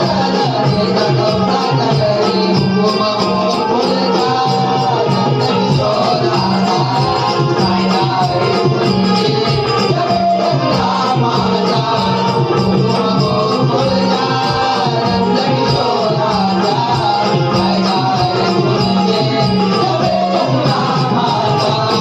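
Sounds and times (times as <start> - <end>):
jingling hand percussion: 0.0 - 22.0
person singing folk song: 0.0 - 22.0.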